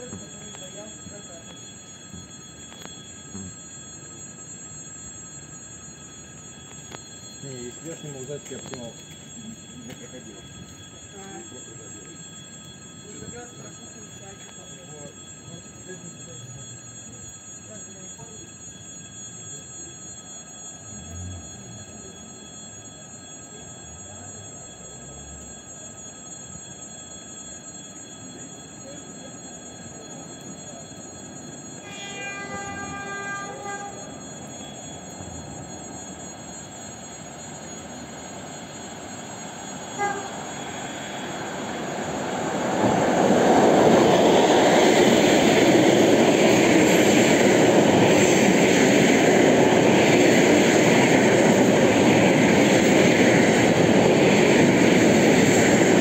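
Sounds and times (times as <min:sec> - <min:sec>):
electric train approaching: 0:00.0 - 0:19.5, 0:20.2 - 0:56.0
train horn blast: 0:31.8 - 0:34.0, 0:39.9 - 0:40.4.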